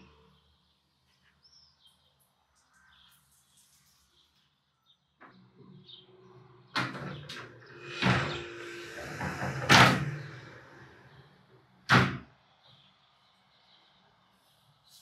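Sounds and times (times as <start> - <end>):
glass panels rolling on track: 6.8 - 11.0.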